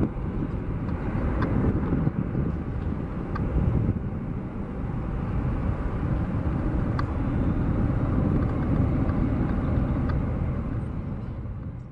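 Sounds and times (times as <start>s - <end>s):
jet engines rumbling: 0.0s - 11.9s.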